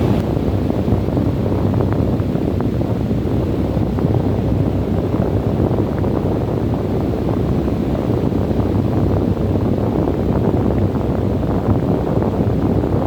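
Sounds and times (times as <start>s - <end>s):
wind blowing: 0.0s - 1.8s.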